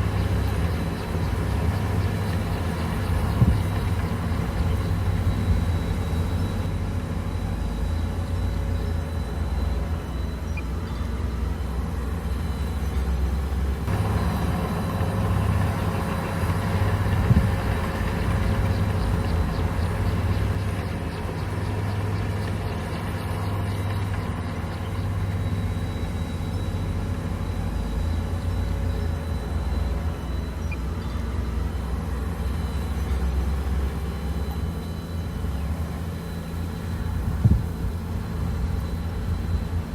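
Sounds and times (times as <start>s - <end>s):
bulldozer diesel engine droning: 0.0s - 39.9s.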